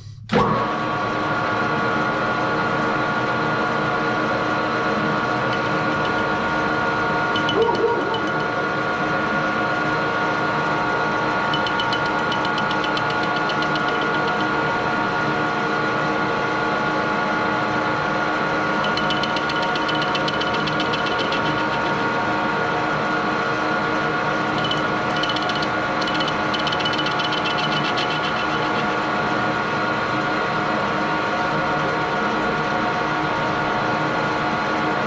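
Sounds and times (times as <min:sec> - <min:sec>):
metal lathe whining: 0:04.8 - 0:08.7, 0:11.1 - 0:15.3, 0:18.3 - 0:33.6
fast ticking: 0:05.3 - 0:08.6, 0:11.4 - 0:14.7, 0:18.7 - 0:22.5, 0:24.4 - 0:29.3, 0:31.3 - 0:32.8.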